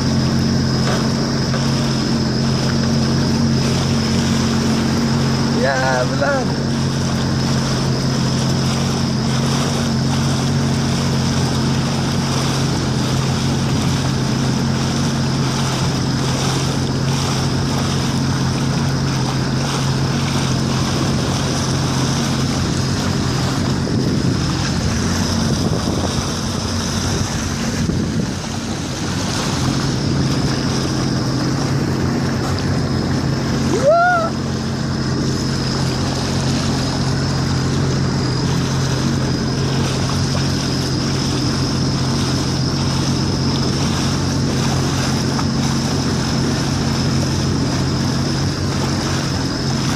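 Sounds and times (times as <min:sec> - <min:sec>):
jet ski engine running: 0:00.0 - 0:49.9
water rushing: 0:00.0 - 0:49.9
wind on microphone: 0:00.0 - 0:49.9
short rising call: 0:33.6 - 0:34.6.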